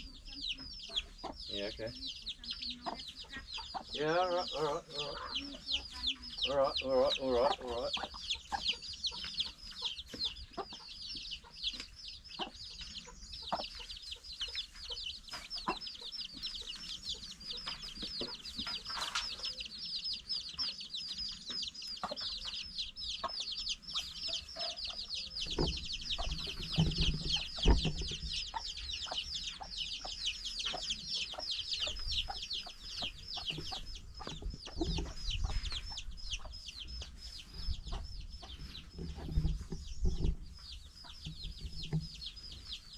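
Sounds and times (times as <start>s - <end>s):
chickens clucking: 0.0s - 42.9s
knocks and low thumps: 25.4s - 28.5s.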